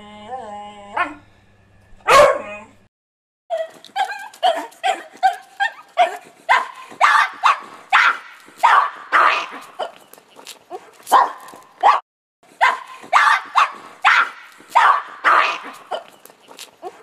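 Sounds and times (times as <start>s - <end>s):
dog barking loudly: 2.1s - 2.5s, 3.5s - 10.0s, 10.7s - 12.0s, 12.6s - 16.1s
dog barking rapidly: 2.1s - 2.5s, 3.5s - 9.9s, 10.7s - 12.0s, 12.6s - 16.1s.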